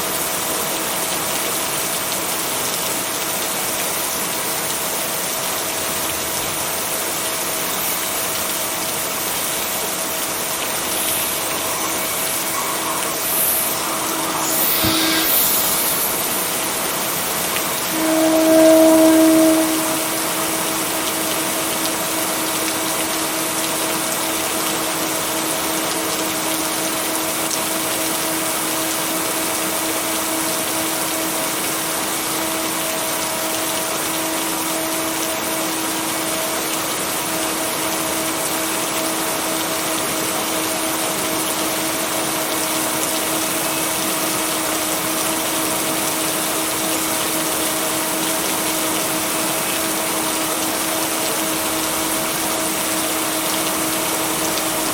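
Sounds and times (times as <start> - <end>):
steady rain hiss: 0.0 - 54.9
low two-tone hum: 10.3 - 21.5.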